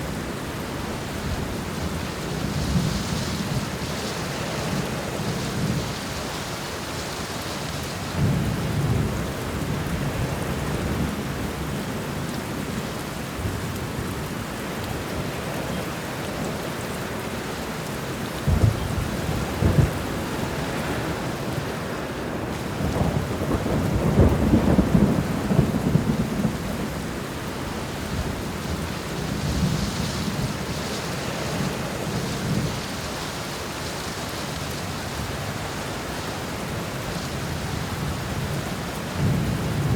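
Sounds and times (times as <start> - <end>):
steady rain: 0.0 - 39.9
thunder rumbling: 18.4 - 21.7, 22.6 - 33.6.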